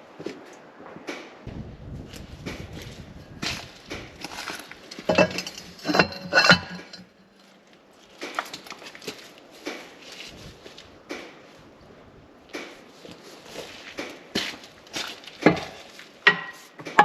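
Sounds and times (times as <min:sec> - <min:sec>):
metal tools clinking and clattering: 0:03.5 - 0:07.5.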